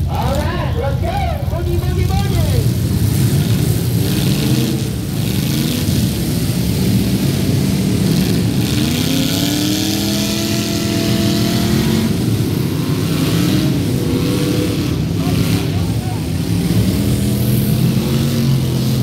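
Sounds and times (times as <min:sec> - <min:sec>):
car engine revving: 0:00.0 - 0:19.0
car engines running: 0:00.0 - 0:19.0.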